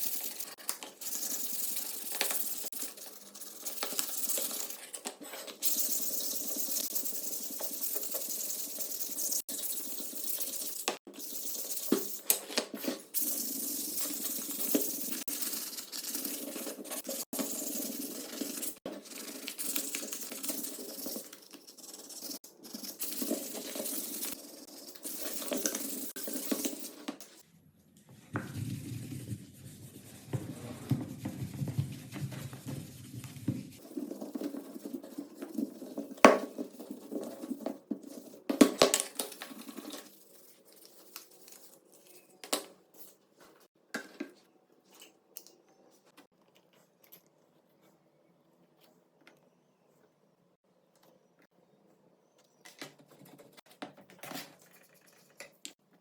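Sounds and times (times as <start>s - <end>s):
rubbing and scraping metal: 13.0s - 27.4s.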